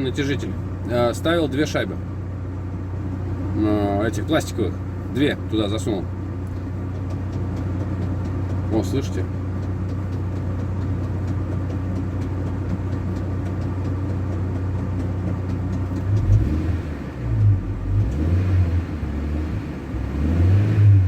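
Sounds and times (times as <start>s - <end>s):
engine idling with ticking: 0.0s - 20.4s
engine revving: 15.8s - 21.0s.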